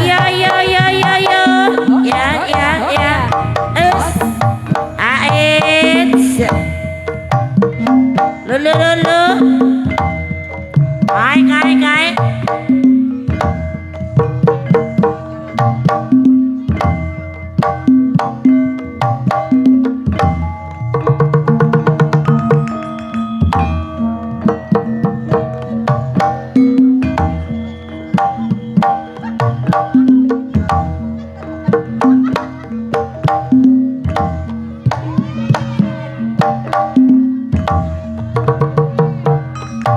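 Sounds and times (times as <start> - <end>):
person singing: 0.0 - 7.0
hand drum strokes: 0.0 - 39.9
struck metallophone notes: 0.0 - 39.9.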